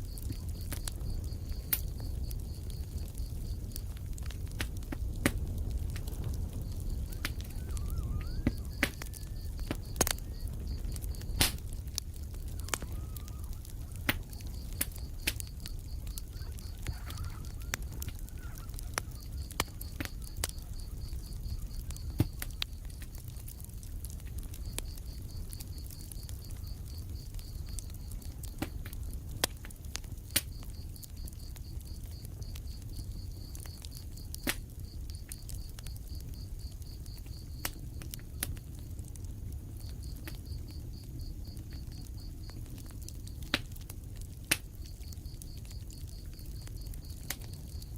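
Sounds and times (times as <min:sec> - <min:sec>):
wood fire crackling and popping: 0:00.0 - 0:47.9
cricket chirping: 0:05.6 - 0:47.9
faint wavering calls: 0:07.0 - 0:09.6, 0:12.5 - 0:14.0, 0:16.2 - 0:21.0.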